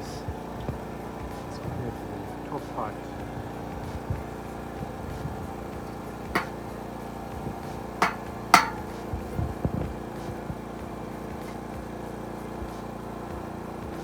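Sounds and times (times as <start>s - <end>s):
hammer blows: 6.4s - 6.7s, 8.0s - 8.9s.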